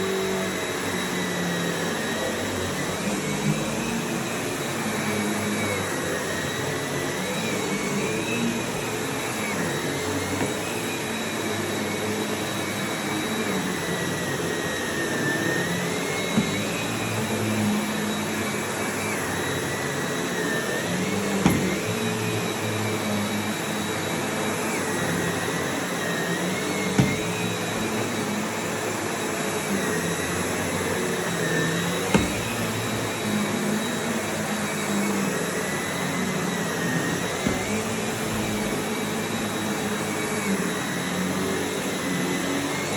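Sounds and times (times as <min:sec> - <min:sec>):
vacuum cleaner whining: 0:00.0 - 0:42.9
brief knocks: 0:21.4 - 0:21.9, 0:27.0 - 0:27.4, 0:32.1 - 0:32.9.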